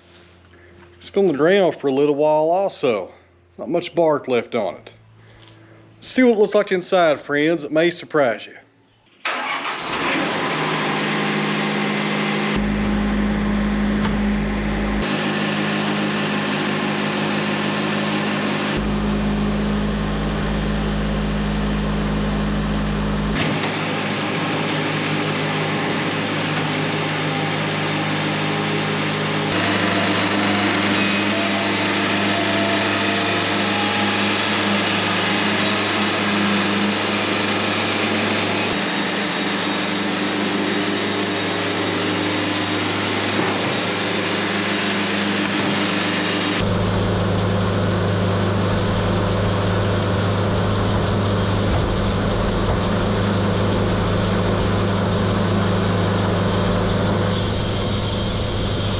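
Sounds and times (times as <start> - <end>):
sawmill engine drone: 9.3 - 58.9
saw blade hissing through wood: 29.5 - 46.7.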